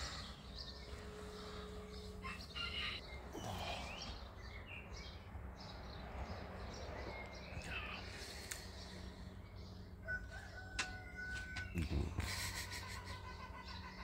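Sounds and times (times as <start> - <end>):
birds chirping and calling: 0.0 - 14.0
low background hum: 0.0 - 14.0.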